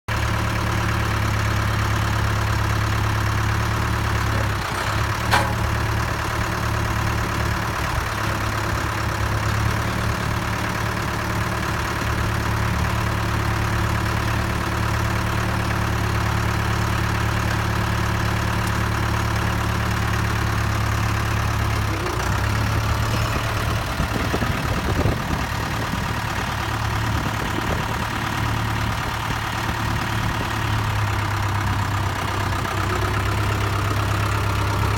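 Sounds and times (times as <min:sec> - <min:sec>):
tractor engine idling: 0:00.1 - 0:34.9.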